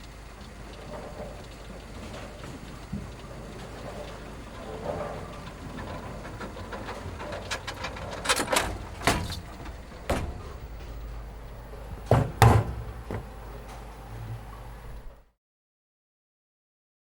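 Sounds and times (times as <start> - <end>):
low background hum: 0.0 - 15.3
sharp knocks and clatters: 0.4 - 13.9.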